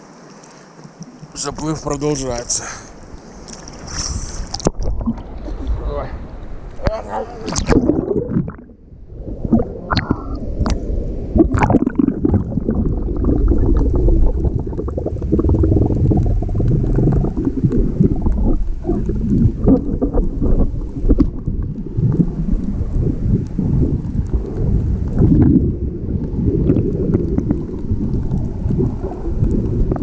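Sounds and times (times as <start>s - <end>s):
sea water sloshing and gurgling: 0.0s - 30.0s
sharp water splashes: 7.4s - 8.8s.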